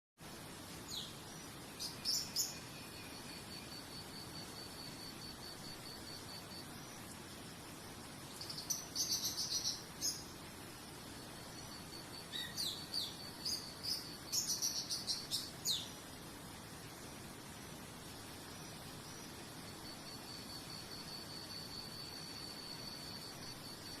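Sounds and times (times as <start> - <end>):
soft hiss: 0.2 - 24.0
birds chirping in bursts: 8.2 - 16.6
thin high pulsing call: 11.6 - 16.0.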